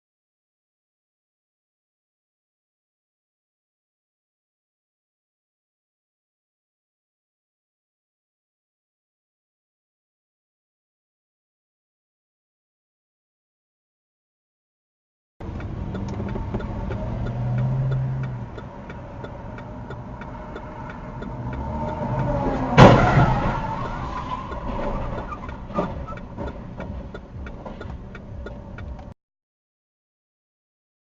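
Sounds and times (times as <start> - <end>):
car engine and road rumble: 15.4 - 29.2
regular ticking: 15.4 - 29.2
collision crash: 22.5 - 26.1.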